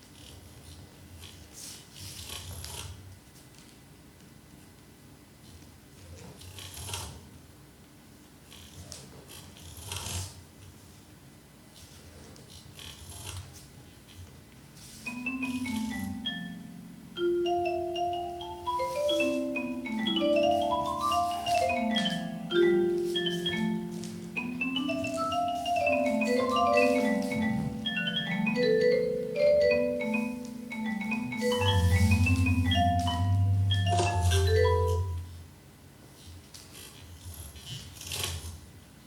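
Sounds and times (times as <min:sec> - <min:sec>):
marimba-like mallet notes: 0:15.0 - 0:35.4
low hum: 0:31.5 - 0:35.3.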